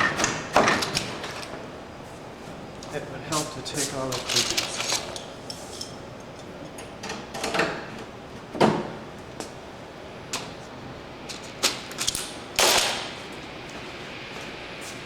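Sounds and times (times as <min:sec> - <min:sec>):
clecos clicking and clattering: 0:04.1 - 0:05.9.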